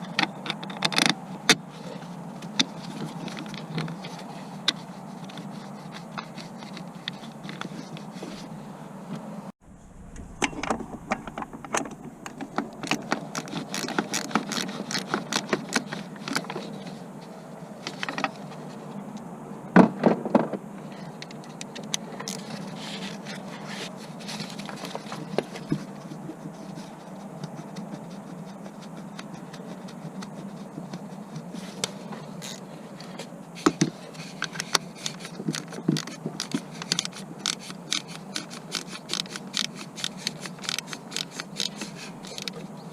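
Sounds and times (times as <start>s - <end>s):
hand tools clicking and scraping: 0.0s - 9.3s, 10.4s - 19.2s, 20.4s - 42.9s
low hum: 8.5s - 13.8s.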